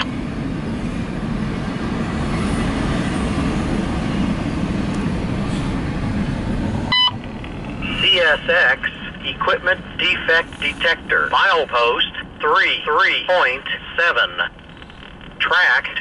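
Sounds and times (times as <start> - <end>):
freight cars rolling on rails: 0.0 - 8.8
short beep: 6.9 - 7.2.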